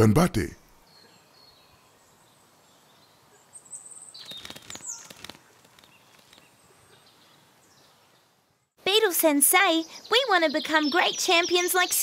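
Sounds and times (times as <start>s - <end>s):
birds chirping: 0.0s - 12.0s
faint outdoor hiss: 0.0s - 12.0s
bird trill: 3.0s - 8.2s.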